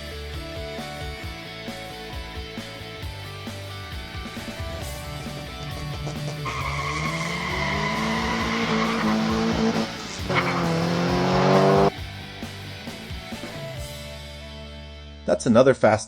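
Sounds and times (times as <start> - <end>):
guitar rock music: 0.0 - 15.3
race car engine revving: 5.3 - 11.9.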